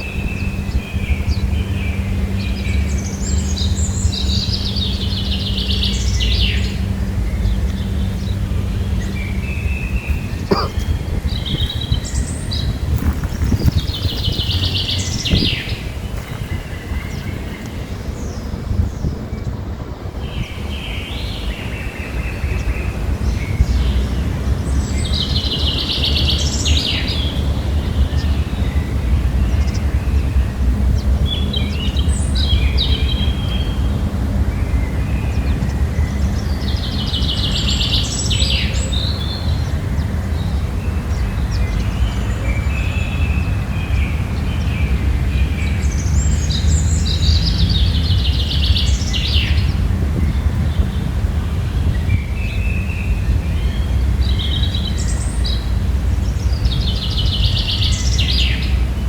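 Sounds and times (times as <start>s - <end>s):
steady low rumble: 0.0s - 59.0s
songbird trilling: 7.7s - 17.8s.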